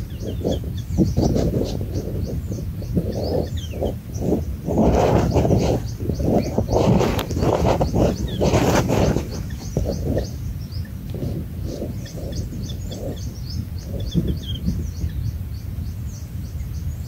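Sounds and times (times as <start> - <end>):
low rumble of outdoor noise: 0.0 - 17.0
small birds chirping: 0.0 - 17.0.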